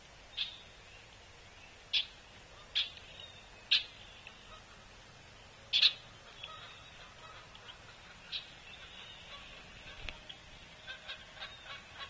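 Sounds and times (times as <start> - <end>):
faint outdoor background: 0.0 - 12.0.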